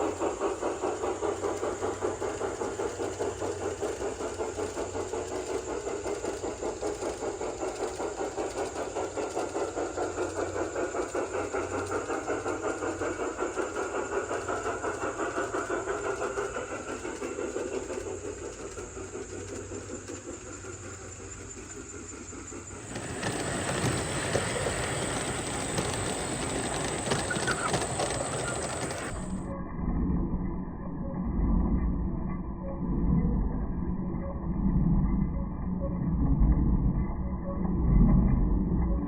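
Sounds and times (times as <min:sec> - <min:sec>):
model train rhythmic beat: 0:00.0 - 0:29.5
clatter of small clicks: 0:22.8 - 0:29.4.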